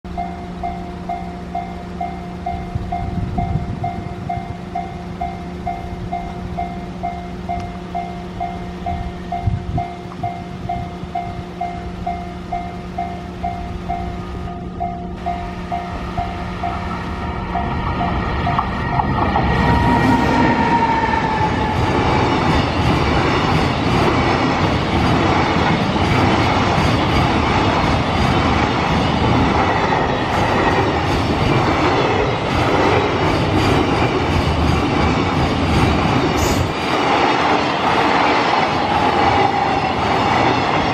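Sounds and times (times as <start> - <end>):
locomotive passing: 0.1 - 40.9
wagons rumbling on steel wheels: 8.6 - 40.9.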